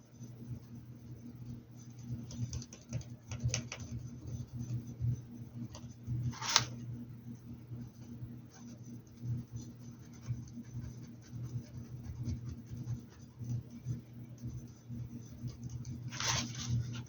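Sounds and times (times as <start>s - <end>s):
paintbrush scratching: 8.5s - 14.0s.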